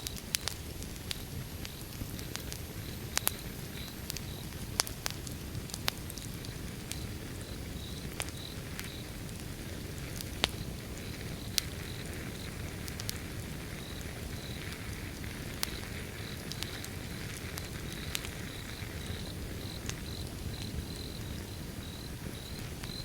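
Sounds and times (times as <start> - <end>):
wood fire crackling: 0.0 - 23.0
crickets chirping: 6.3 - 23.0.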